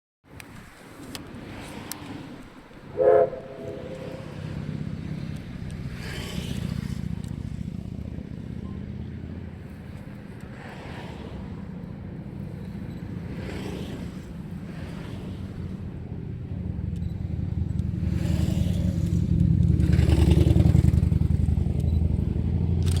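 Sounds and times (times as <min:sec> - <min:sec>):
train rumbling: 0:02.0 - 0:08.4
steam locomotive whistle: 0:02.9 - 0:04.6.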